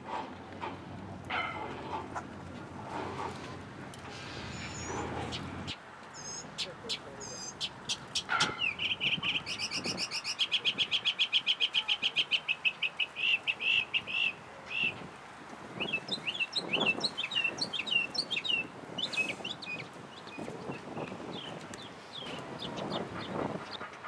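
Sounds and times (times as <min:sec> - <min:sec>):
songbird trilling: 0:04.5 - 0:15.0, 0:15.8 - 0:23.8.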